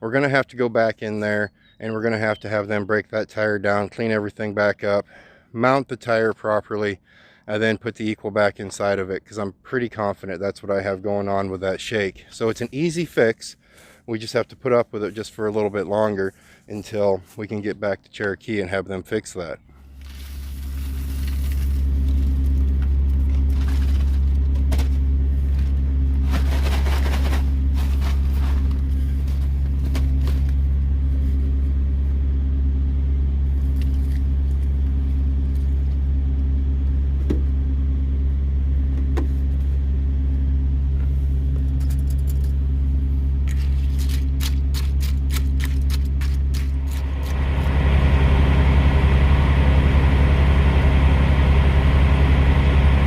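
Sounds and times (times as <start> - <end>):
diesel truck engine drone: 0.0 - 53.0
road noise: 19.7 - 53.0.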